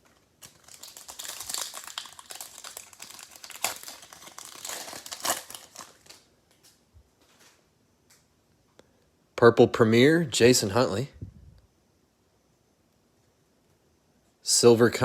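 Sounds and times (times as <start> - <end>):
plastic wrapper crinkling: 0.0 - 6.3.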